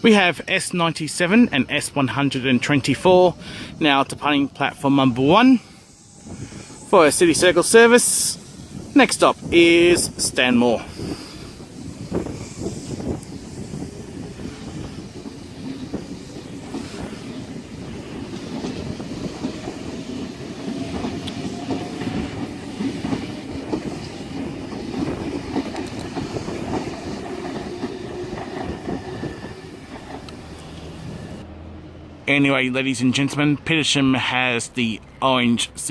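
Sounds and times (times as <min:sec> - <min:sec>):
train rumble: 0:00.0 - 0:35.1
train wheels clicking over rail joints: 0:05.6 - 0:31.4.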